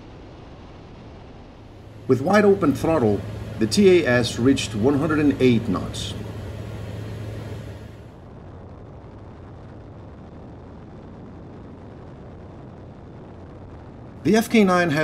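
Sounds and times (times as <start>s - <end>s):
airplane engine and propeller drone: 1.6s - 8.2s, 14.3s - 15.0s.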